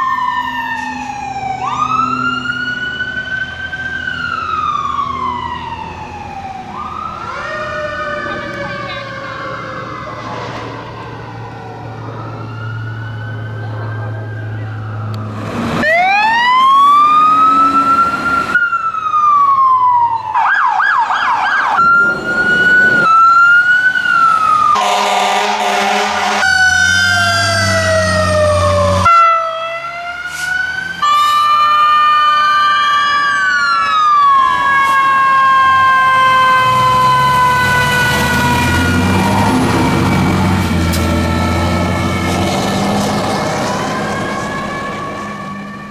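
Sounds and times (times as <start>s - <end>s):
fire engine siren wail and yelp: 0.0s - 45.9s
truck engine: 0.0s - 45.9s
air horn blast: 24.8s - 26.8s, 29.0s - 29.5s.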